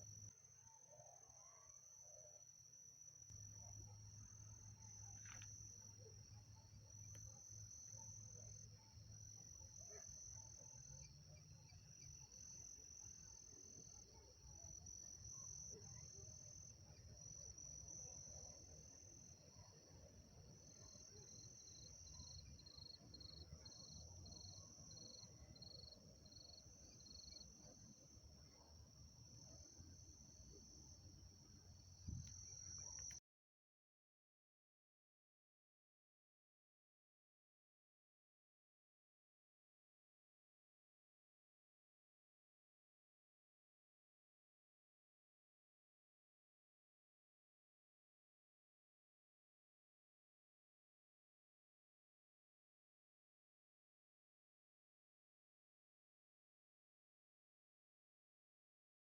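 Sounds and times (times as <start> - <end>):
crickets chirping: 0.0 - 33.2.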